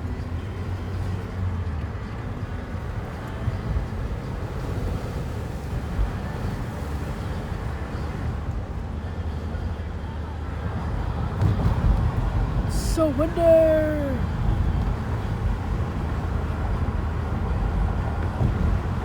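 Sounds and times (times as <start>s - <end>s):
low rumble of road noise: 0.0s - 19.0s
wind buffeting car windows: 14.2s - 19.0s.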